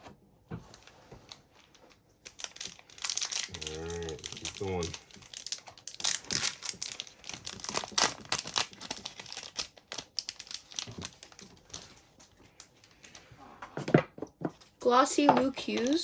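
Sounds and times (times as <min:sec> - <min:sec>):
cards rustling: 0:00.7 - 0:13.4, 0:14.4 - 0:16.0
wrappers crinkling: 0:00.7 - 0:13.4.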